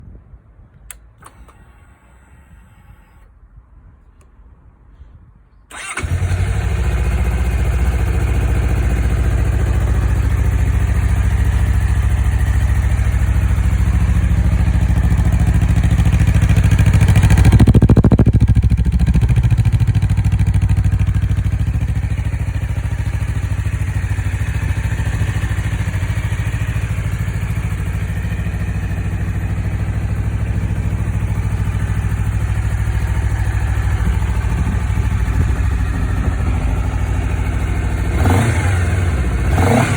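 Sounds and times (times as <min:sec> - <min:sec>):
motorcycle engine idling: 0:05.7 - 0:39.9
engine revving: 0:37.9 - 0:39.9.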